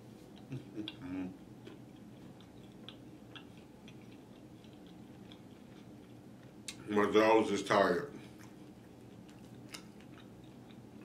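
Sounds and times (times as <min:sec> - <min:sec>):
person chewing food: 0:00.0 - 0:06.8, 0:08.2 - 0:11.0
wet mouth clicks: 0:01.7 - 0:05.5.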